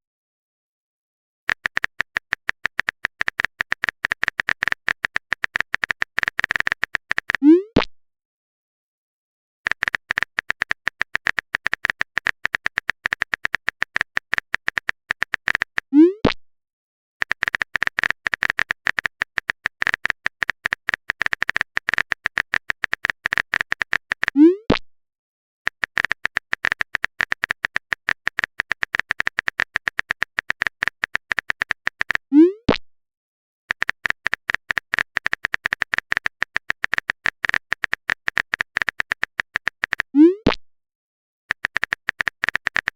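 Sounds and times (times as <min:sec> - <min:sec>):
phone keyboard typing clicks: 0:01.5 - 0:07.4, 0:09.7 - 0:15.9, 0:17.2 - 0:24.4, 0:25.7 - 0:32.3, 0:33.7 - 0:40.2, 0:41.5 - 0:42.9.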